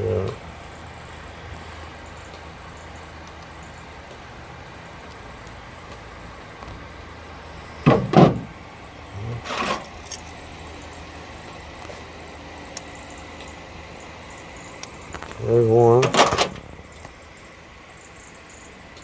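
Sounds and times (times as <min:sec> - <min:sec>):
background hum: 0:00.0 - 0:19.0
scraping rustle: 0:09.2 - 0:10.4
metal parts clacking: 0:09.4 - 0:10.5, 0:15.1 - 0:16.7.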